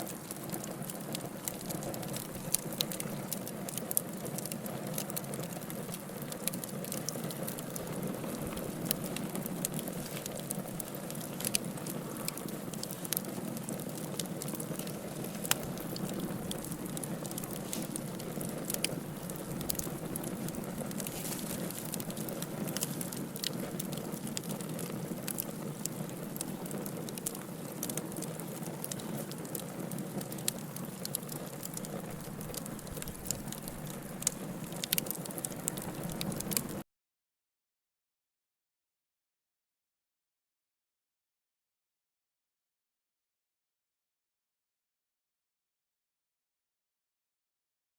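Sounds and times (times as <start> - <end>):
wood fire burning and crackling: 0.0 - 36.8.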